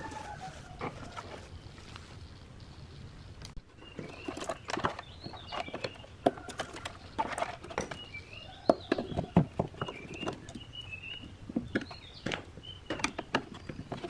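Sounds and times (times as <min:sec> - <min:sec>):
bird chirping: 0:01.5 - 0:14.0
sharp clicks and knocks on parts: 0:11.5 - 0:14.0.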